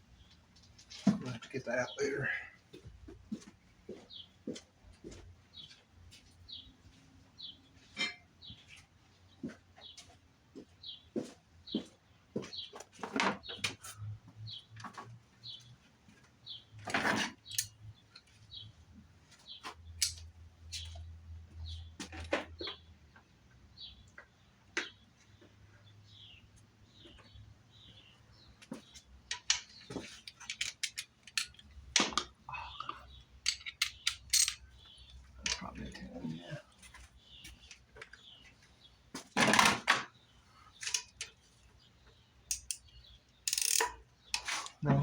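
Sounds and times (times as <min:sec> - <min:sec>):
hand tools clicking and knocking: 0:29.3 - 0:32.4, 0:33.4 - 0:34.8, 0:35.4 - 0:35.7, 0:42.5 - 0:44.8.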